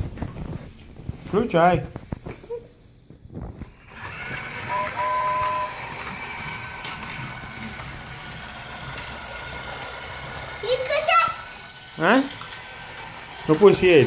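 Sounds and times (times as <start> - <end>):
toy train motor whirring: 3.8 - 14.0.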